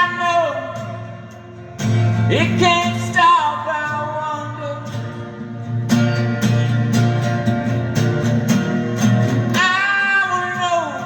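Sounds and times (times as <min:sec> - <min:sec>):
man singing: 0:00.0 - 0:01.5, 0:02.1 - 0:05.1, 0:09.5 - 0:11.0
guitar strumming: 0:00.0 - 0:11.0.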